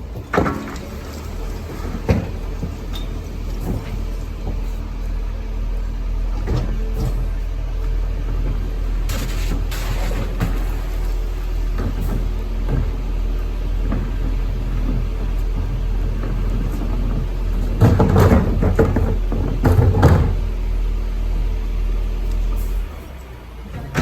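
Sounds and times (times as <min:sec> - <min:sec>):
truck engine rumbling: 0:00.0 - 0:24.0
rough mechanical noise bursts: 0:08.9 - 0:12.8.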